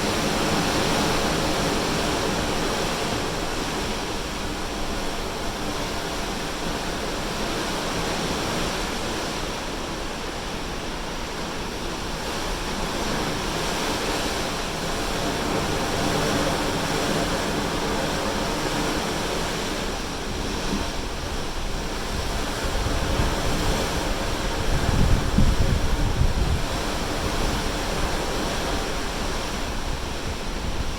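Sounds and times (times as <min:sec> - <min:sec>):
ocean waves rushing: 0:00.0 - 0:30.9
wind buffeting microphone: 0:12.0 - 0:30.9.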